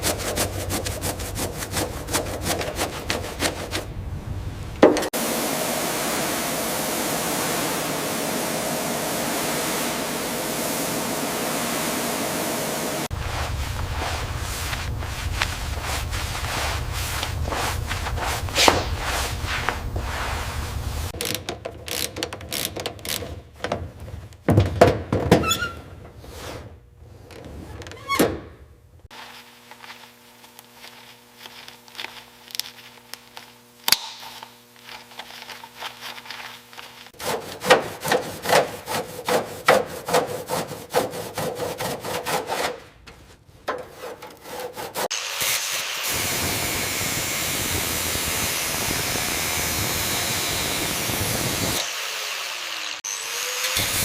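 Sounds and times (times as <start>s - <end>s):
fast rubbing strokes: 0.0s - 3.9s, 13.0s - 21.2s, 34.8s - 42.8s, 43.9s - 45.1s
scraping strokes: 0.0s - 3.9s, 13.0s - 21.2s, 34.8s - 45.1s
steady hum: 0.1s - 21.2s.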